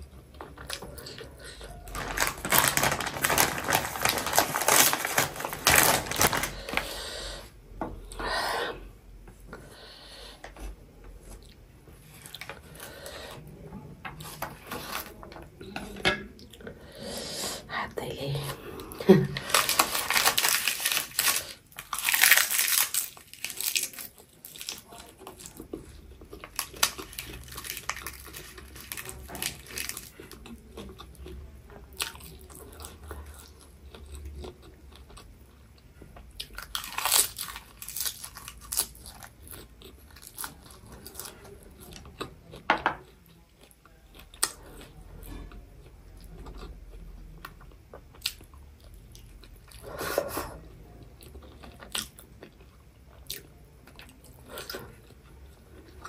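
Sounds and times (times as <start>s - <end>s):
person chewing seaweed: 18.8s - 45.5s, 46.2s - 56.0s
crunchy bites: 36.4s - 41.3s.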